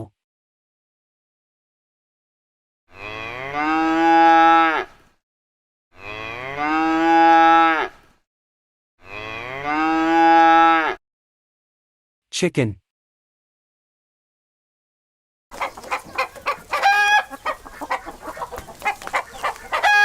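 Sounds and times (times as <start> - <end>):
cow mooing: 2.9 - 5.0, 6.0 - 8.0, 9.0 - 11.0.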